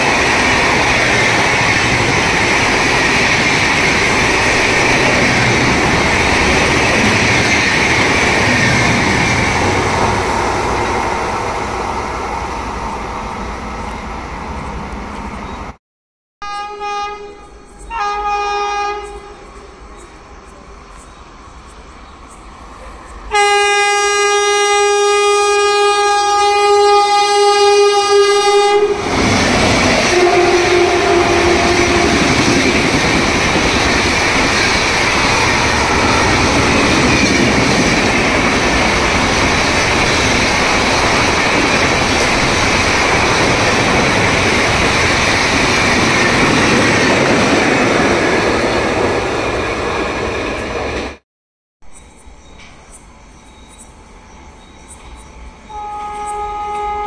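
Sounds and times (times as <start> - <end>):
train passing at high speed: 0.0 - 15.8, 16.8 - 51.2
train horn blast: 16.4 - 19.6, 23.3 - 29.1, 30.0 - 32.5, 55.7 - 57.0.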